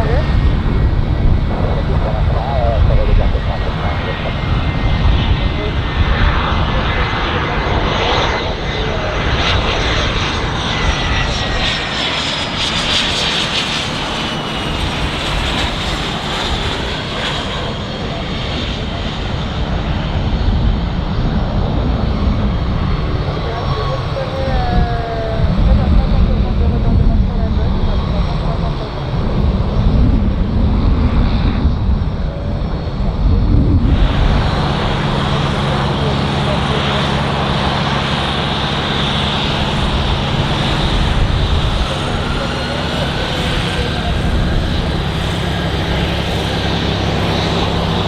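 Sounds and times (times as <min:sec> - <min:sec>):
high whine falling in pitch: 0:00.0 - 0:09.3
steady low hum: 0:00.0 - 0:17.5, 0:19.5 - 0:48.0
aircraft engine running: 0:00.0 - 0:48.0.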